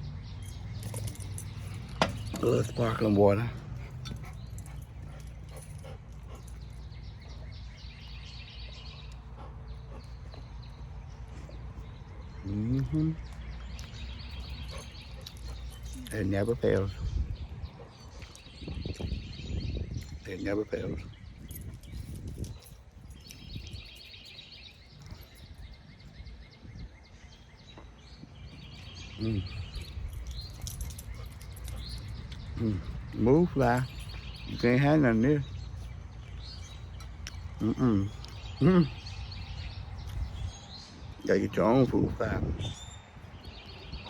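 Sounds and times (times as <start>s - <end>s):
steady low rumble: 0.0s - 23.9s
birds chirping: 0.0s - 44.0s.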